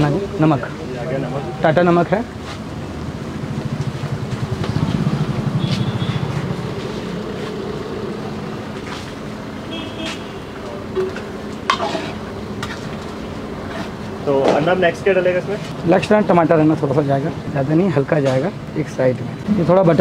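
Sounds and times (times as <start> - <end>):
curry sizzling in a pot: 11.2 - 14.1.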